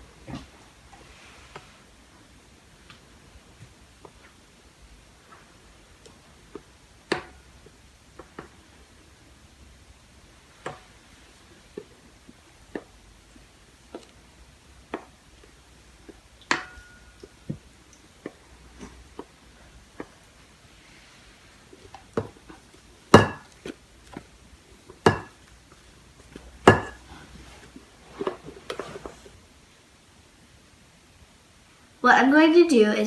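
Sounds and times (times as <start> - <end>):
ringing knocks on cake pans: 23.2 - 23.5, 25.1 - 25.4, 26.7 - 27.0.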